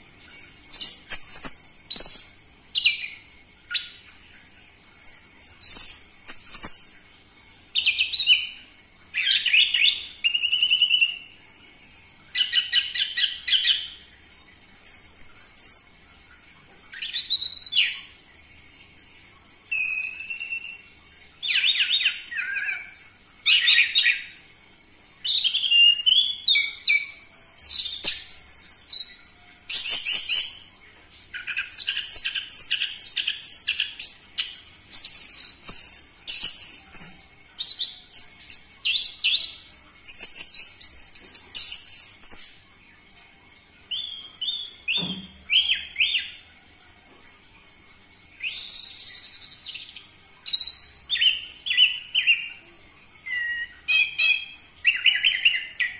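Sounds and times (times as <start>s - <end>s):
bird singing whistles and chatter: 19.7s - 20.9s.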